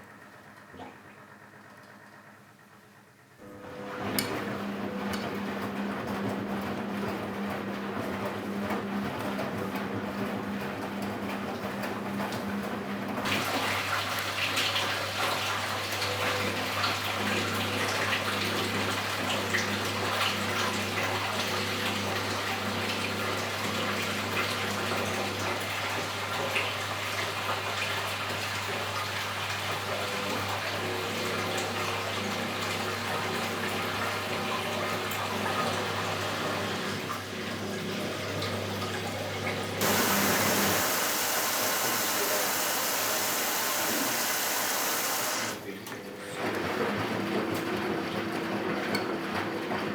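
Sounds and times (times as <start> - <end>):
water rushing into washing machine: 3.5 - 49.9.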